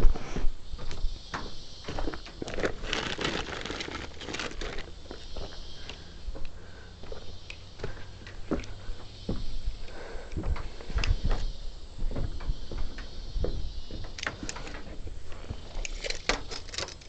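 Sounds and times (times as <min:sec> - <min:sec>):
rustling and crackling: 0:01.9 - 0:06.0, 0:10.4 - 0:17.0.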